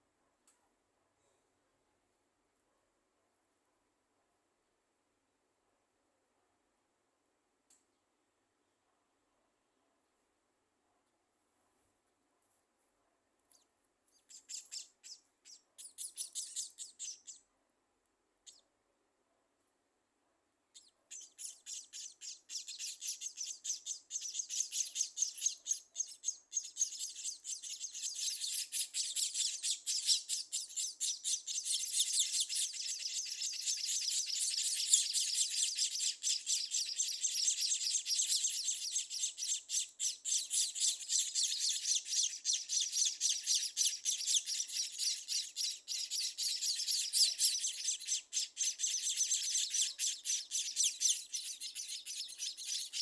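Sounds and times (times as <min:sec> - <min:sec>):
small birds chirping: 0:13.4 - 0:17.5, 0:18.4 - 0:18.7, 0:20.7 - 0:53.0.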